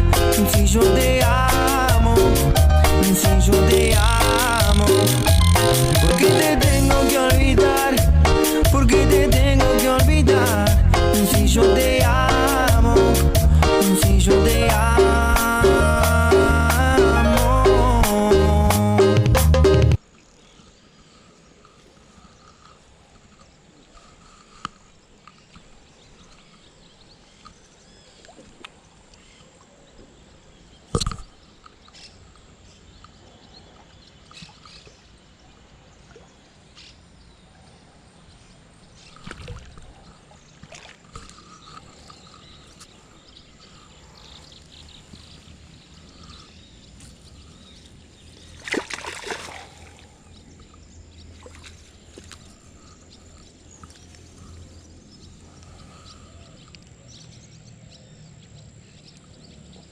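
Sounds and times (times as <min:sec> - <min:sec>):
water sloshing: 0:38.6 - 0:54.7
rustling or splashing: 0:38.9 - 0:54.7.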